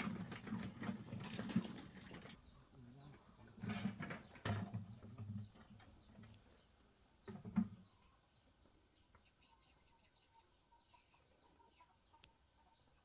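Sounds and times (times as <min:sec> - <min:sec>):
thin high bird chirp: 0:04.3 - 0:13.0.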